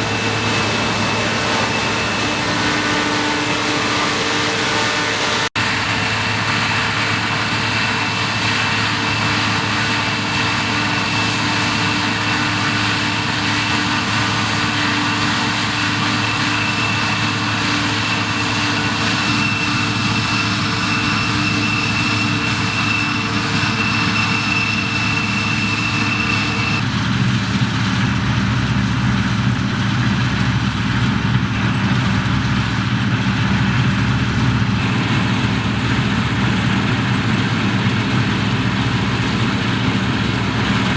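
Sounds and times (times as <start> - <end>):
combine harvester running: 0.0 - 40.9
thin high whine: 15.4 - 26.8.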